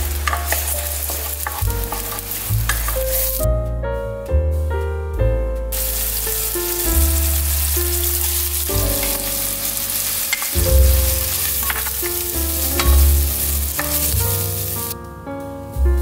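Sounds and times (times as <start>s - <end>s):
onion and tomato sizzling in oil: 0.0s - 3.5s, 5.7s - 15.0s
background music with bass line: 0.0s - 16.0s.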